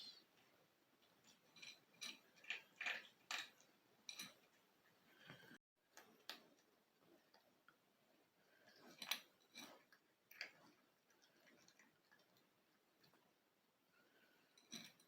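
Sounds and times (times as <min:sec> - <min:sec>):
cat chewing food: 0:01.0 - 0:15.0.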